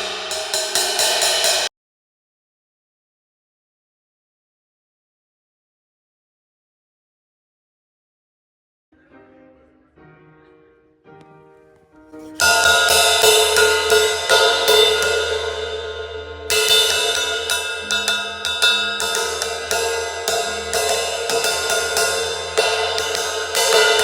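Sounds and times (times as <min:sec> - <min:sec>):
crash cymbal struck with stick: 0:00.0 - 0:01.7, 0:12.4 - 0:24.0.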